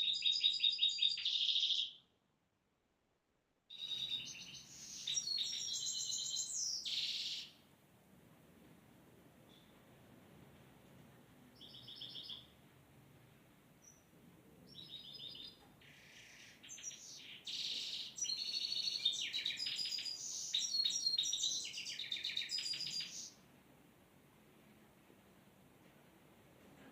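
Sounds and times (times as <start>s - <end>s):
songbirds chirping and trilling: 0.0s - 2.1s, 3.7s - 7.7s, 11.5s - 12.7s, 13.8s - 23.5s.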